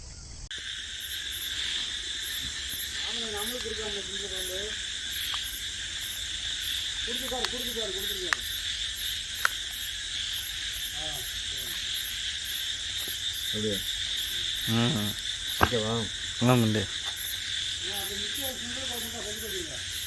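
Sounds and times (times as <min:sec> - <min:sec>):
crickets trilling: 0:00.0 - 0:20.0
pulsing insect call: 0:00.0 - 0:20.0
sharp ticks: 0:02.2 - 0:11.7.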